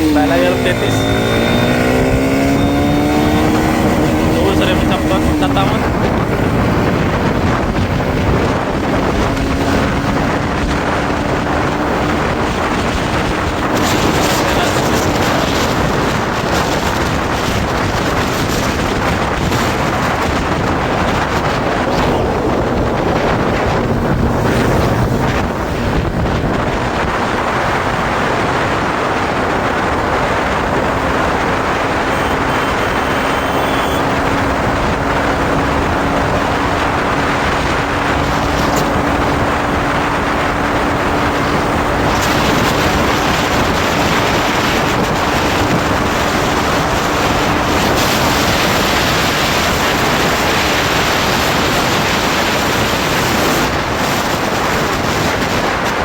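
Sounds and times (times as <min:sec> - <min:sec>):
motorcycle engine hum rising: 0:00.0 - 0:56.0
wind rushing over microphone: 0:00.0 - 0:56.0.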